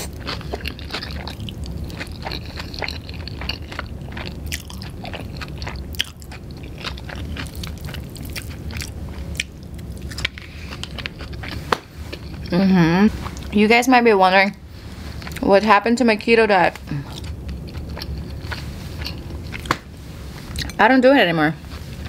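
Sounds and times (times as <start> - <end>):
person chewing noodles: 0.0 - 13.6, 16.9 - 19.8.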